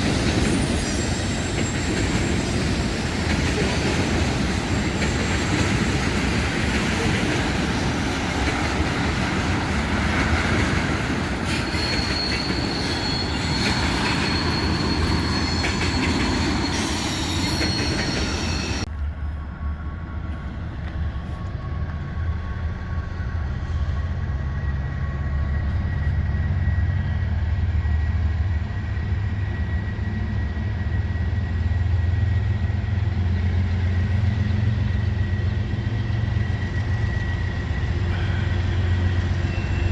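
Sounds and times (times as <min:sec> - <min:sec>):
wheels squealing: 0:00.0 - 0:18.9, 0:33.4 - 0:39.9
train wheels rolling on rail: 0:00.0 - 0:39.9.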